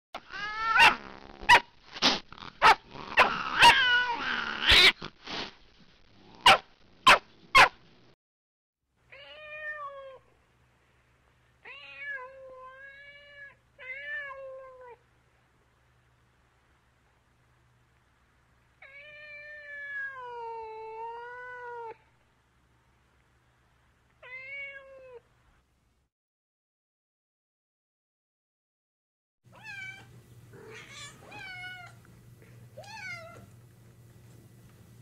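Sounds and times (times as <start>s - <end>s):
cat meowing and yowling: 0.2s - 1.0s, 3.4s - 4.9s, 9.1s - 10.2s, 18.8s - 22.0s, 29.5s - 32.0s, 32.8s - 33.5s.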